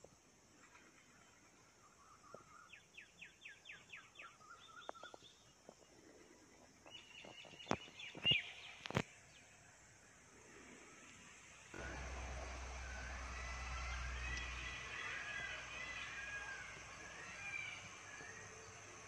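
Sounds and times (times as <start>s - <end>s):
bird chirps: 1.1s - 5.6s, 6.8s - 9.6s, 11.8s - 19.0s.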